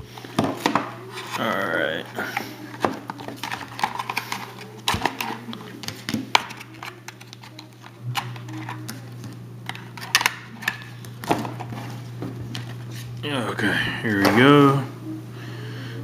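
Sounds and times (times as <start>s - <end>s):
low steady hum: 0.0s - 16.0s
wrapper crinkling: 1.0s - 13.1s.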